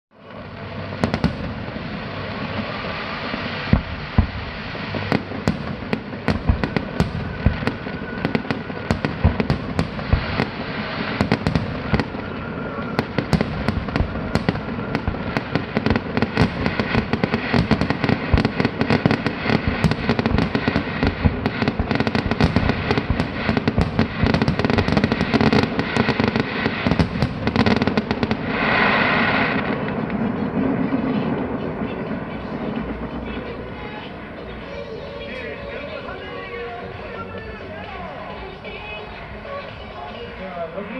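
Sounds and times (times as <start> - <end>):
fireworks bangs and pops: 0.2 - 38.8
continuous loud din: 29.6 - 40.9.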